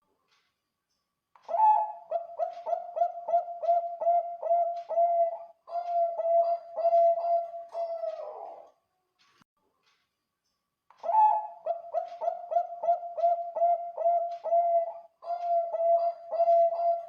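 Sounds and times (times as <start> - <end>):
dove cooing: 1.5 - 8.7, 11.0 - 17.0.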